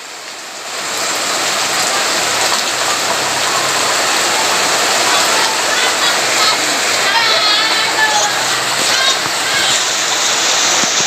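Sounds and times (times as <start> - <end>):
heavy rain pattering on ground: 0.0 - 11.0.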